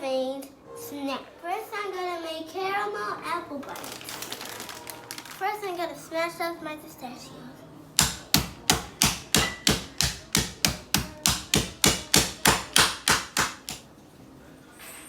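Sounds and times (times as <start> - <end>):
pistachios being smashed: 3.8 - 5.4, 8.0 - 13.8.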